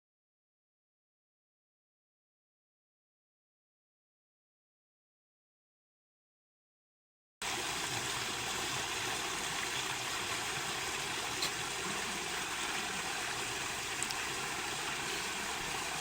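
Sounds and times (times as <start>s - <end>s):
stream running: 7.4s - 16.0s.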